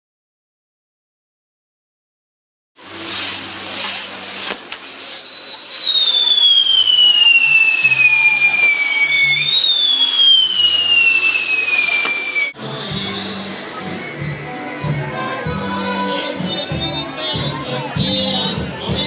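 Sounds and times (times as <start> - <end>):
hiss of burning pyrotechnics: 2.8 - 13.6
shrill whistling fireworks: 2.9 - 13.5.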